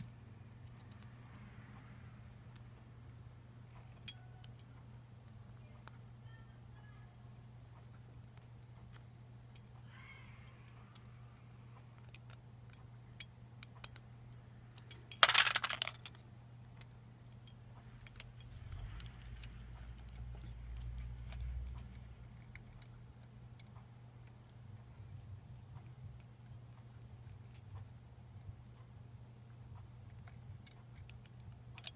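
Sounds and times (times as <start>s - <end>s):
light clicks and taps of tools: 0.0s - 2.9s, 3.6s - 6.4s, 11.8s - 28.9s, 29.5s - 31.9s
steady low hum: 0.0s - 31.9s.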